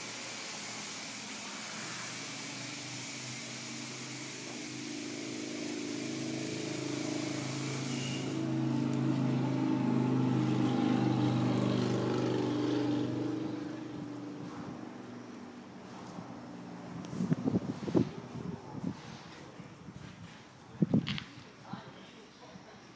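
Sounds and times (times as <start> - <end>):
loud hiss of spray: 0.0 - 13.3
car engine running: 1.4 - 18.9.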